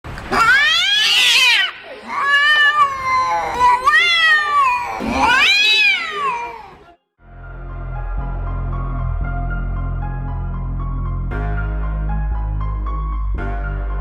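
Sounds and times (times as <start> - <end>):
cat meowing: 0.3 - 6.9.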